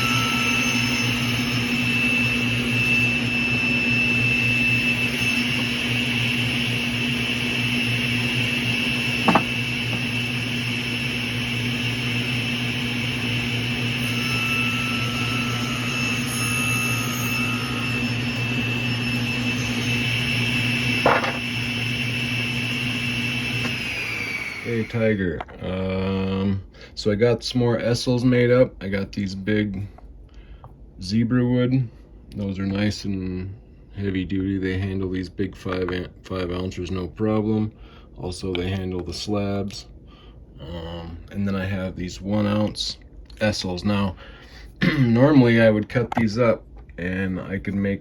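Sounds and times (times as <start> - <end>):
machine motor whining: 0.0 - 25.7
short knocks: 9.2 - 10.1.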